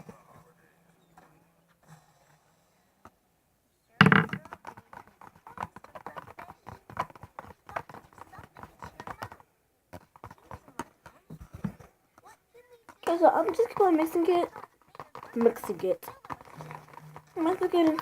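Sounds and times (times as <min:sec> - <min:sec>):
loud knock: 0:04.0 - 0:04.4
utensil stirring slime in a cup: 0:13.0 - 0:18.0.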